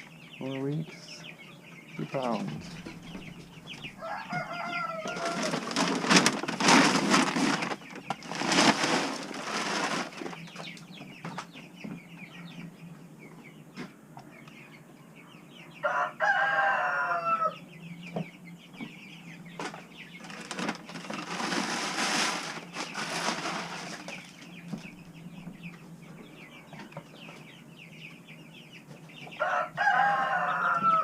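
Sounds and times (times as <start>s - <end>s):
chickens clucking: 0.0s - 31.0s
chicks peeping: 0.0s - 31.0s
rooster crowing: 3.9s - 6.0s, 15.8s - 17.6s, 29.4s - 31.0s
wings flapping: 20.2s - 24.4s.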